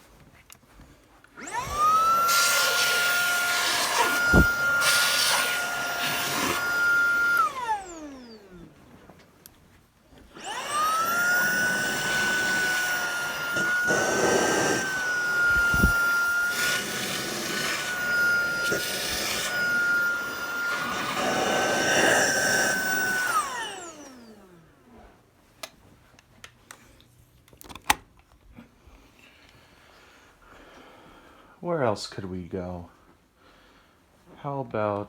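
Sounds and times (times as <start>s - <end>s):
vacuum cleaner whining: 1.3s - 25.2s.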